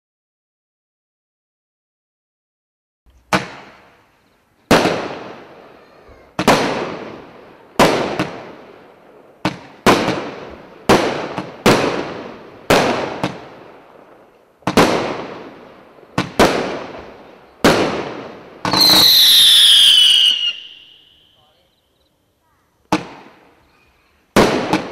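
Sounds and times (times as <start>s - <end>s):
firework bangs: 3.2s - 4.1s, 4.7s - 21.4s, 22.9s - 23.6s, 24.3s - 24.9s
whistling firework shells: 18.6s - 21.7s.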